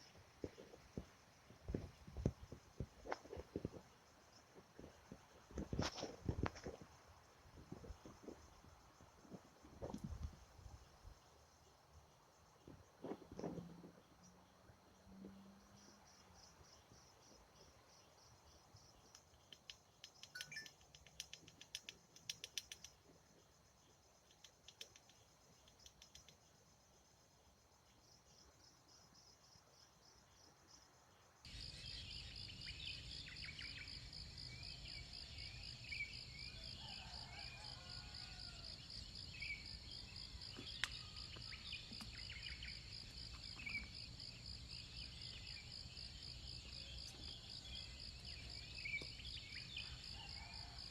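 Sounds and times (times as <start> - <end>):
insects trilling: 0.0 - 50.9
short bird-like chirps: 20.0 - 21.8.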